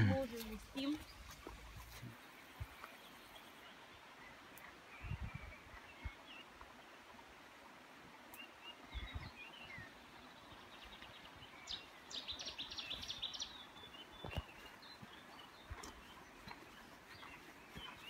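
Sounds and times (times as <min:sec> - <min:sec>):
birds chirping and singing: 0:08.4 - 0:18.0.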